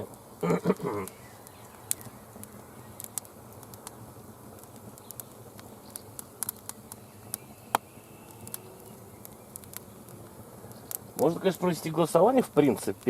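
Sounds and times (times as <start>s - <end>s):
campfire crackling and popping: 0.0s - 13.0s
faint steady hiss: 0.0s - 13.0s.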